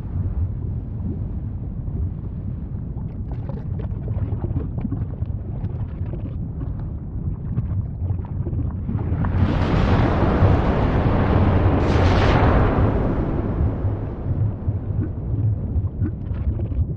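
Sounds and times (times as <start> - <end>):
volcano rumbling: 0.0 - 16.9
roaring rush: 9.0 - 16.4.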